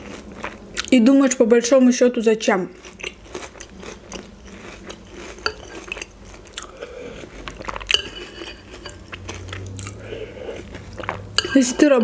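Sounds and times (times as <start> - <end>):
chewing crunchy cereal: 0.0 - 1.0, 2.7 - 11.9
spoon clinking glass bowl: 5.4 - 6.1, 7.9 - 9.2, 11.4 - 12.0.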